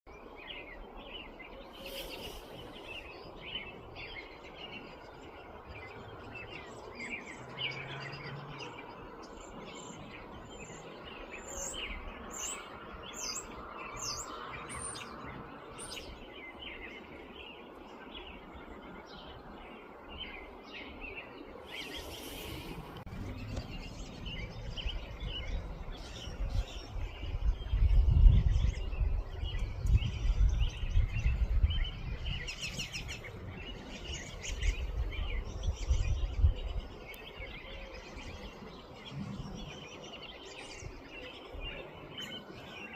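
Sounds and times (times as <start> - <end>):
birds chirping: 0.1 - 42.9.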